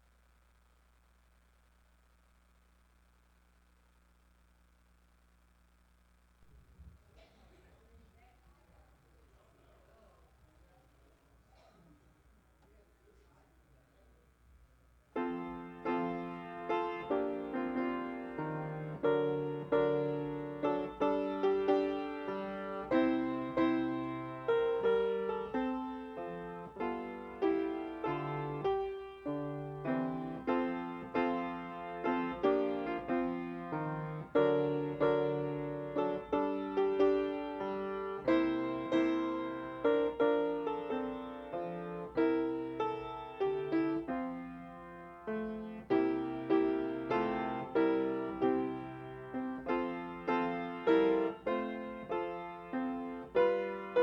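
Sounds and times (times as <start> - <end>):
slow solo piano chords: 15.2 - 54.0.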